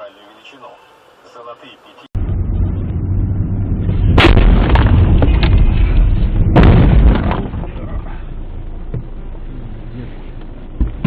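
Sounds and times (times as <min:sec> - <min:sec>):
road rumble: 0:00.0 - 0:11.0
car crash impacts: 0:03.9 - 0:08.2
debris clattering: 0:04.0 - 0:08.1.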